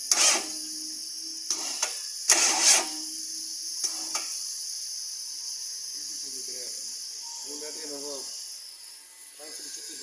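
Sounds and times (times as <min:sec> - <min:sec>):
generator engine cranking on starter: 0:00.0 - 0:00.6, 0:01.5 - 0:03.0.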